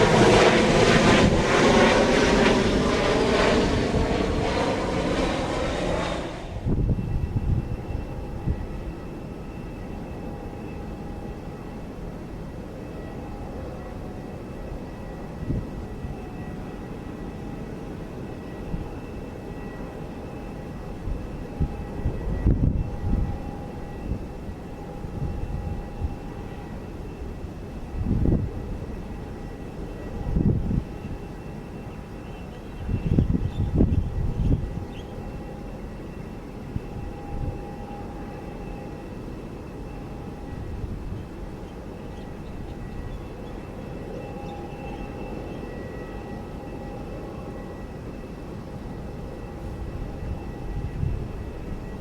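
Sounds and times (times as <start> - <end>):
distant jet engines rumbling: 0.0 - 8.8
jet engines rumbling: 0.0 - 52.0.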